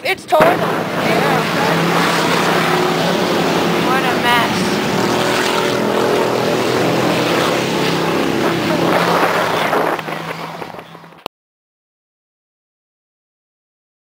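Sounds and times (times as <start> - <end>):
vehicle engine running: 0.0 - 11.3
wash of noise: 0.3 - 11.2.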